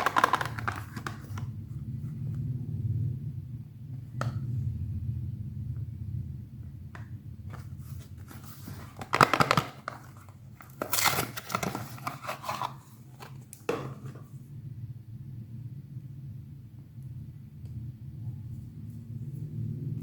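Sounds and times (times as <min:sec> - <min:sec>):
packaging crinkling and tearing: 0:00.0 - 0:01.5, 0:07.5 - 0:13.4
steady low hum: 0:00.0 - 0:20.0.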